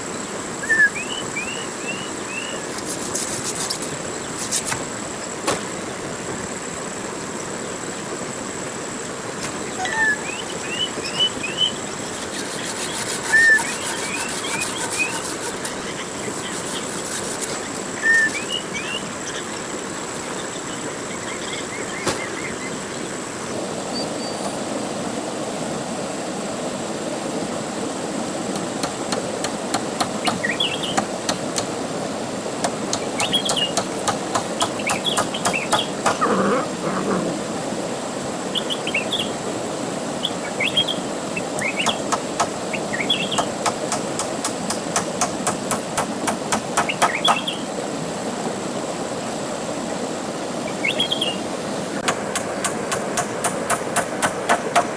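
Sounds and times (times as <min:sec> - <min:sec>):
birds chirping: 0:00.0 - 0:06.2, 0:09.2 - 0:24.7, 0:28.6 - 0:37.4, 0:40.2 - 0:47.8, 0:50.6 - 0:54.9
background hiss: 0:00.0 - 0:54.9.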